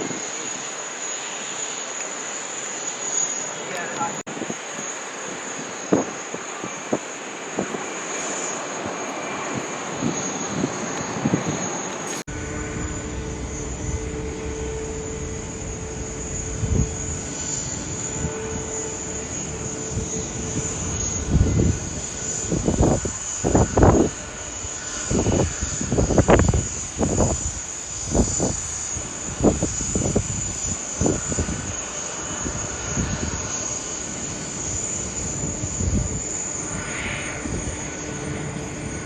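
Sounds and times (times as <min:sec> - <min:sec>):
distant jet engines rushing: 0:00.0 - 0:39.0
steady hum: 0:05.9 - 0:39.0
low rumble: 0:12.2 - 0:28.5.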